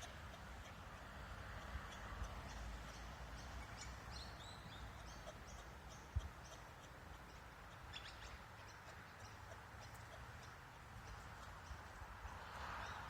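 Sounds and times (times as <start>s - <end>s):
steady outdoor hiss: 0.0s - 13.0s
birds chirping and whistling: 1.9s - 6.6s.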